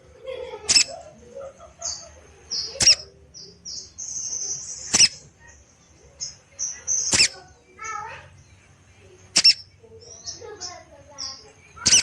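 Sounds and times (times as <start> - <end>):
high bird chirping: 0.6 - 1.0, 1.8 - 12.0
sharp piercing bird calls: 0.7 - 1.0, 2.5 - 5.3, 6.2 - 8.1, 9.2 - 12.0.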